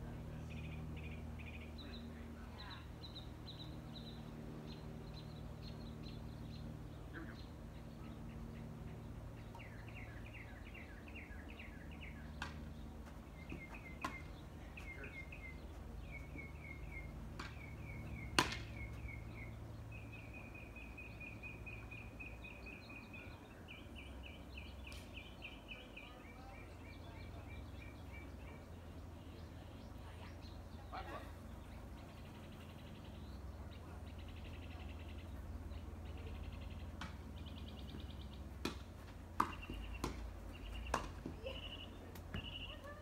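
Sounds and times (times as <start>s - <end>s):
bird chirping: 0.3s - 38.6s, 39.4s - 43.0s
ball being struck: 13.6s - 14.3s, 17.3s - 18.8s, 38.5s - 41.4s.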